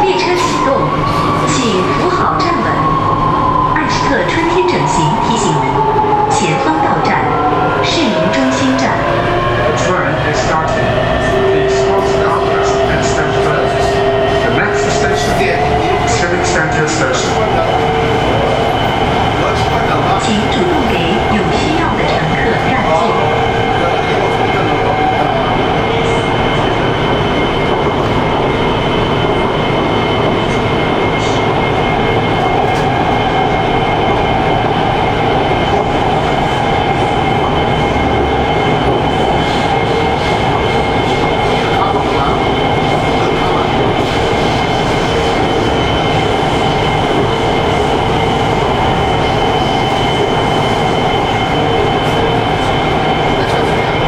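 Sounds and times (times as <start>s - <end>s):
train whining tones: 0.0s - 54.0s
wheels rumbling on rail: 0.0s - 54.0s.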